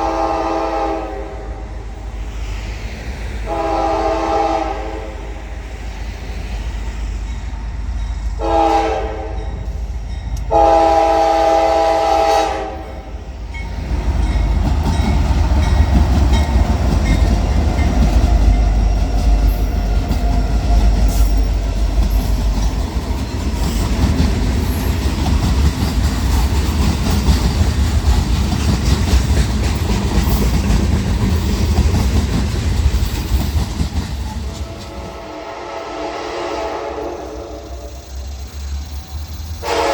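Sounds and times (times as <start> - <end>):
train horn chord: 0.0 - 1.7, 3.5 - 5.2, 8.4 - 9.6, 10.5 - 13.1, 34.6 - 37.9, 39.6 - 39.9
train passing low rumble: 0.0 - 39.9
wheels clattering on rail: 13.5 - 35.3.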